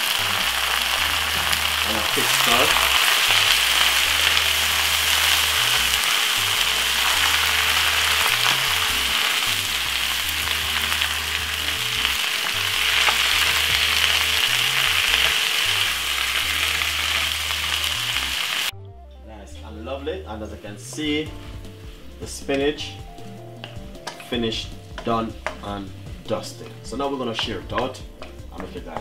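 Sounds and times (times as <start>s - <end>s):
vegetables sizzling in oil: 0.0s - 18.7s.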